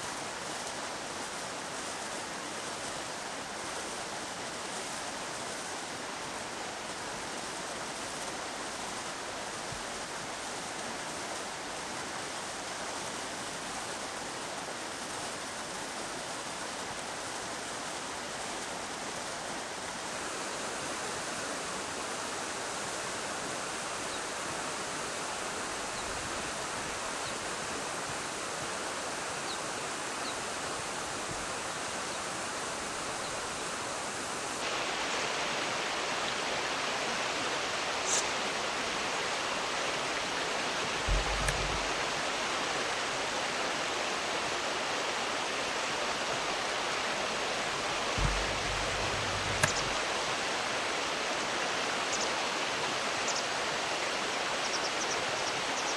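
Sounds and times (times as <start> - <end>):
river water rushing: 0.0 - 55.9
short low thumps: 41.1 - 42.0, 48.2 - 50.0.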